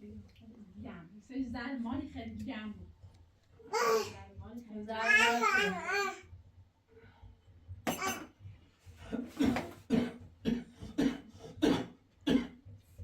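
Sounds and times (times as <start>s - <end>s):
person coughing: 7.9s - 8.3s, 9.0s - 12.6s.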